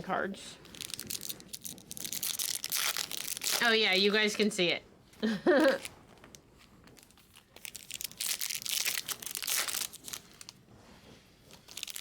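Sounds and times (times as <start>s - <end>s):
card pack wrappers crinkling: 0.7s - 4.2s, 5.6s - 10.6s, 11.5s - 12.0s.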